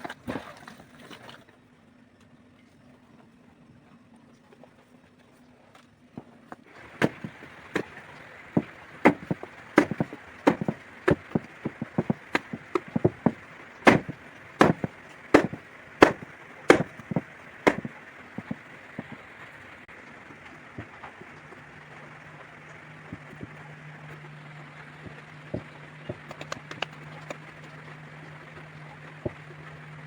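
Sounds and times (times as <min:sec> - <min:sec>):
knife chopping on cutting board: 0:07.0 - 0:07.9, 0:08.6 - 0:18.6.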